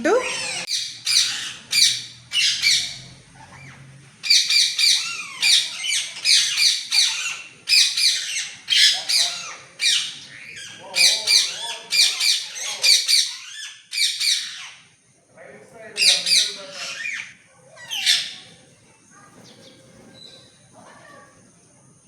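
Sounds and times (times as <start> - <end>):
parrots screeching: 0.0 - 14.9, 16.0 - 18.5.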